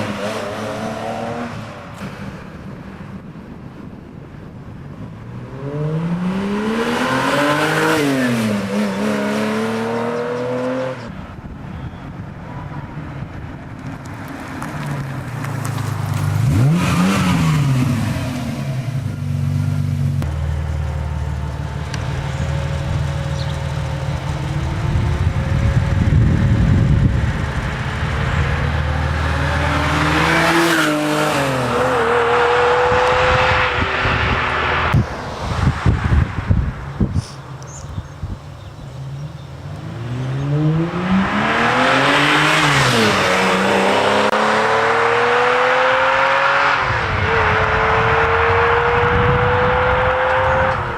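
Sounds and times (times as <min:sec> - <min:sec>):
car engine revving: 0:05.2 - 0:11.1, 0:15.8 - 0:36.4, 0:39.0 - 0:50.9.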